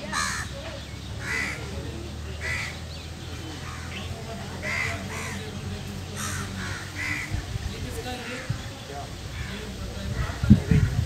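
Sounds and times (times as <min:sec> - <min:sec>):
bird calling: 0:00.0 - 0:07.5.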